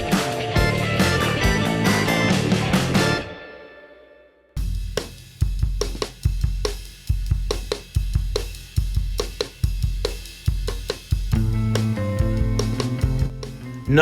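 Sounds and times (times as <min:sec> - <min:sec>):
drum kit rock beat: 0:00.0 - 0:03.3, 0:04.6 - 0:14.0.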